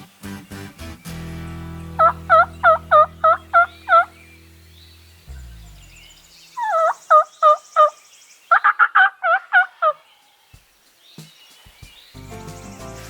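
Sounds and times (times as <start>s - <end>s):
turkey yelping: 2.0s - 4.1s, 6.6s - 10.0s.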